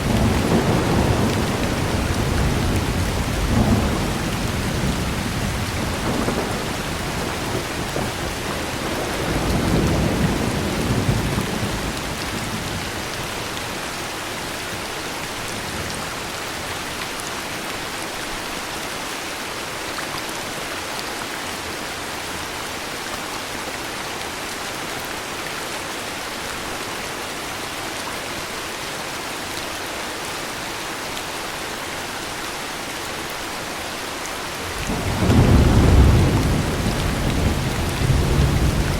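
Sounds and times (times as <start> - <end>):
thunder rumbling: 0.0 - 13.3, 34.6 - 38.9
heavy rain: 0.0 - 38.9.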